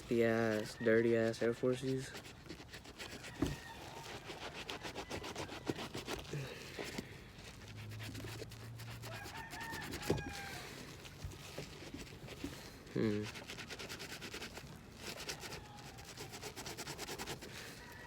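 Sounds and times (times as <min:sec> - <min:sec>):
brush scrubbing rubber sole: 0:00.0 - 0:18.0
faint rooster crowing: 0:00.1 - 0:01.8, 0:02.9 - 0:07.1, 0:08.7 - 0:11.2, 0:15.0 - 0:18.0.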